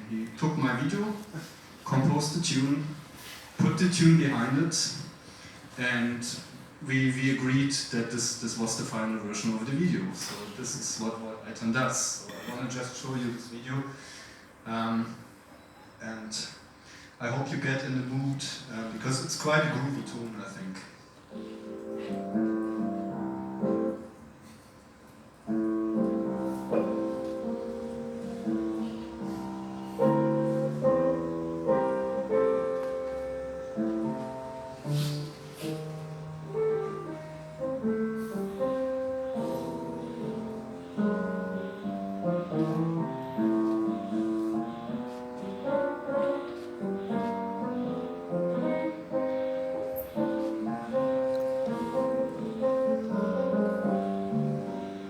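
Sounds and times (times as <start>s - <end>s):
piano tune: 21.2s - 24.6s, 25.3s - 55.0s.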